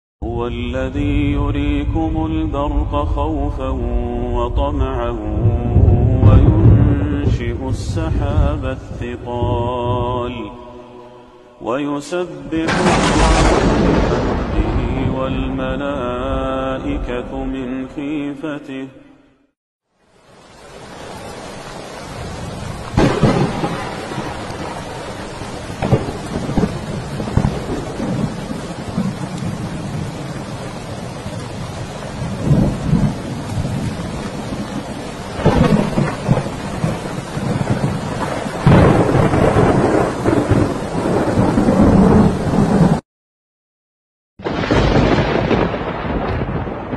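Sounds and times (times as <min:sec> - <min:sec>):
thunder rumbling: 0:00.6 - 0:10.4, 0:12.5 - 0:17.6, 0:20.7 - 0:43.0, 0:44.4 - 0:46.9
steady rain: 0:05.1 - 0:10.6, 0:12.6 - 0:15.6, 0:19.9 - 0:43.0, 0:44.4 - 0:46.9.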